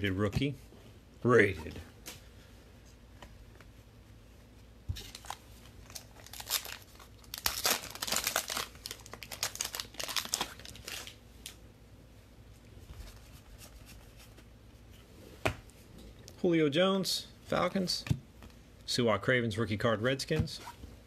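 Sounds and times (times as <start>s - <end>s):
plastic wrapper crinkling and tearing: 5.0s - 11.6s.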